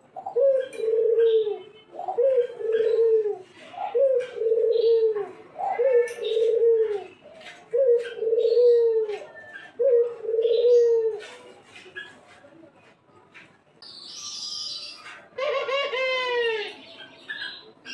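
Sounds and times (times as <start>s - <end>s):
dove cooing: 0.0s - 11.3s, 15.3s - 16.8s.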